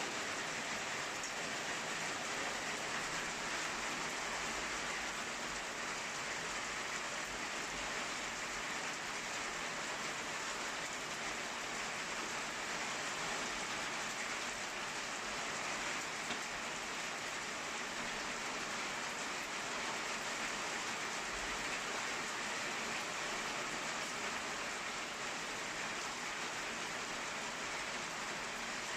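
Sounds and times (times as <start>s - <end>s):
steady rain hiss: 0.0s - 28.9s
small tick: 16.3s - 16.5s.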